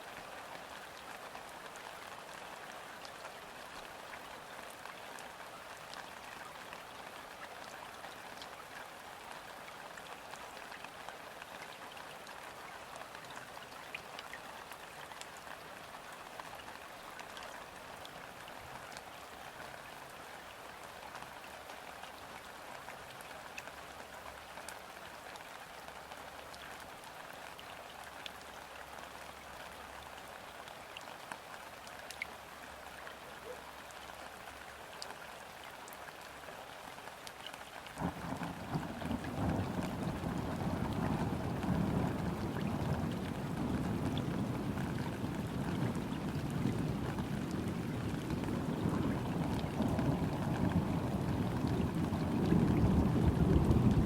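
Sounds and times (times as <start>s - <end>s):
light rain on water: 0.0s - 54.0s
raindrop ticks: 37.2s - 54.0s.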